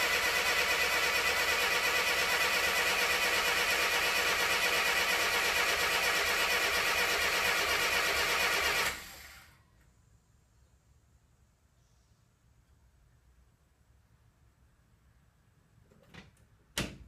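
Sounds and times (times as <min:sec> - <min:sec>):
starter motor cranking engine: 0:00.0 - 0:09.5.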